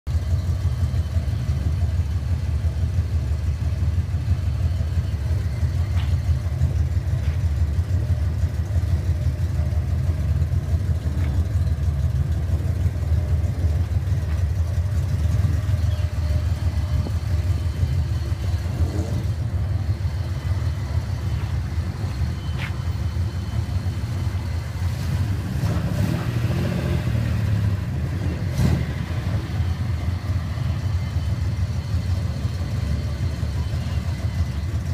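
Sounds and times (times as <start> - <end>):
car exhaust rumbling at idle: 0.1 - 25.8
engine revving: 15.0 - 22.8, 23.6 - 30.5.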